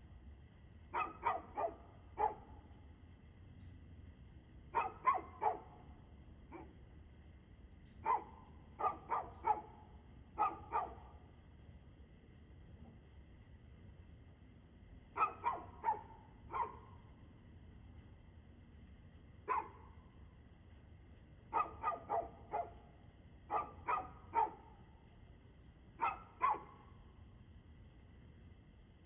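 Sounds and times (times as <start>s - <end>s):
faint steady hum: 0.0s - 29.0s
dog barking: 0.9s - 2.6s, 4.7s - 5.8s, 6.5s - 6.8s, 8.0s - 9.8s, 10.4s - 11.1s, 15.2s - 16.9s, 19.5s - 19.8s, 21.5s - 22.8s, 23.5s - 24.8s, 26.0s - 26.8s.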